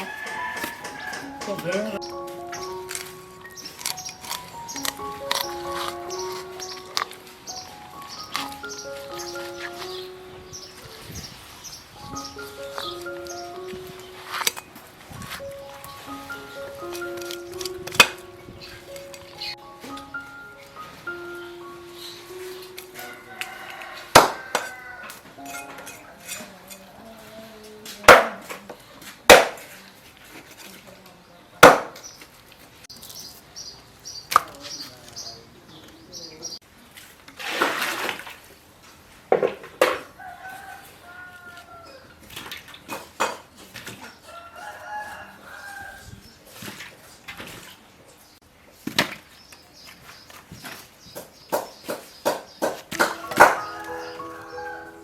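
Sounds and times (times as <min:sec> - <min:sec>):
rooster crowing: 0:00.0 - 0:01.5, 0:23.0 - 0:25.4, 0:40.1 - 0:42.2, 0:44.2 - 0:46.2, 0:53.0 - 0:55.0
chickens clucking: 0:51.5 - 0:55.0.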